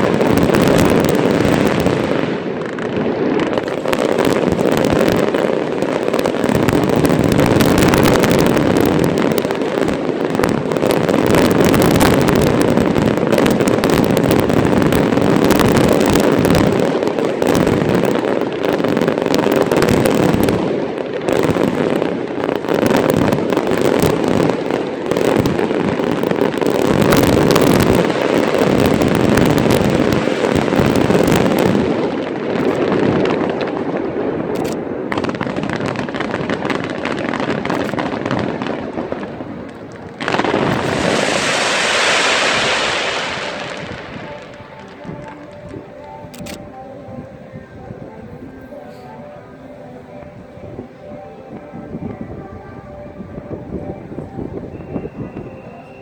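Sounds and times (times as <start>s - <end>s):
fireworks bangs and crackling pops: 0.0s - 49.3s, 50.1s - 56.0s.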